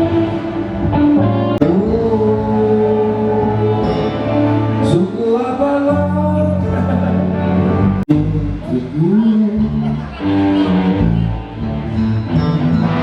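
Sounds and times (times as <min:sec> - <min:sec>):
person singing long notes: 0:00.0 - 0:07.1
live band music: 0:00.0 - 0:13.0
steady bass: 0:00.0 - 0:13.0.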